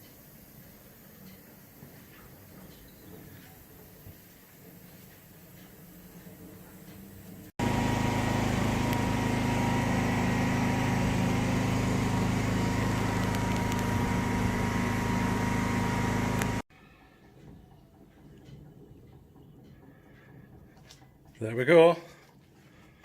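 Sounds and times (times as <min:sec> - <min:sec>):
machine drone with whine: 0:07.6 - 0:16.6.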